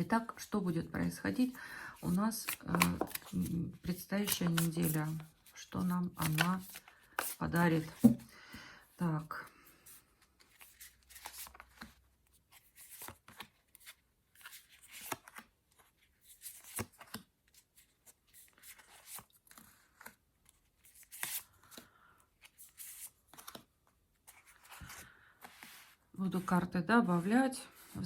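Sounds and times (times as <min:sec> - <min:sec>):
cards being shuffled: 0:01.1 - 0:08.3, 0:10.4 - 0:15.5, 0:16.3 - 0:20.2, 0:20.8 - 0:21.8, 0:22.4 - 0:25.9.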